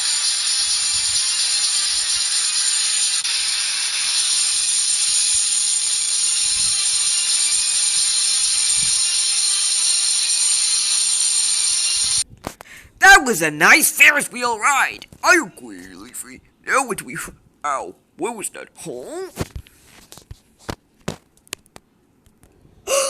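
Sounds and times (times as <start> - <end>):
toy motor and gears whirring: 0.0 - 12.2.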